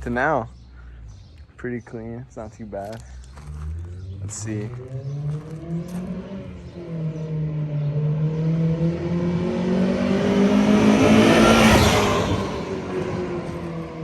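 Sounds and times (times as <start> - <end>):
car engine accelerating past: 3.2 - 14.0.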